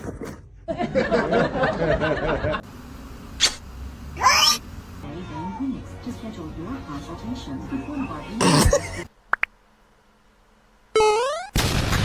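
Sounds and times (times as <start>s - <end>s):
tone rising in pitch: 11.0s - 11.6s.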